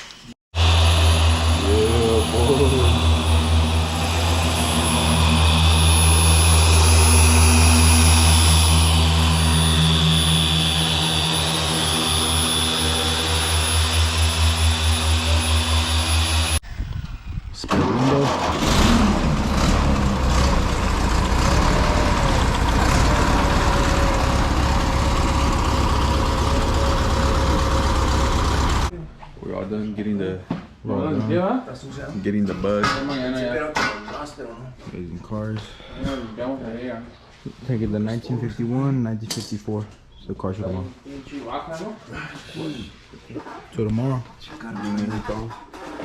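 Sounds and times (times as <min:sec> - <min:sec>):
car engine running: 0:00.6 - 0:16.6, 0:17.7 - 0:28.9.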